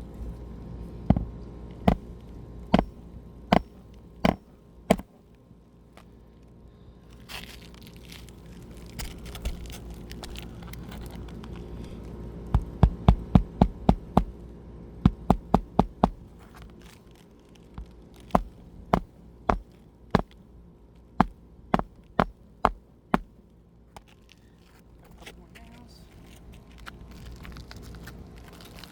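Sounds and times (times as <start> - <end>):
hammer striking nails: 2.8 - 5.1, 12.6 - 14.3, 15.1 - 16.2, 18.4 - 19.6, 21.2 - 23.3.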